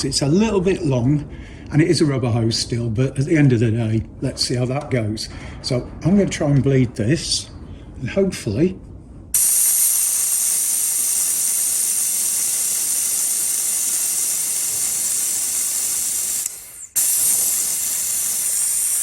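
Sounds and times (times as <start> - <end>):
vacuum brake bleeder hissing: 9.4 - 19.0.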